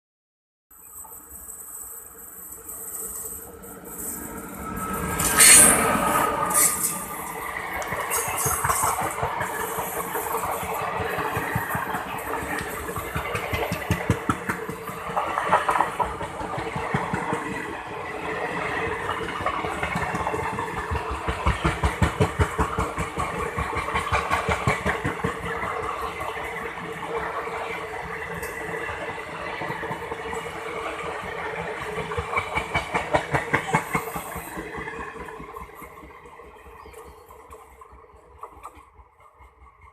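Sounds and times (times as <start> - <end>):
train mechanical hum: 0.8 - 39.9
train wheels thumping over rail joints: 7.7 - 17.6, 19.2 - 26.0.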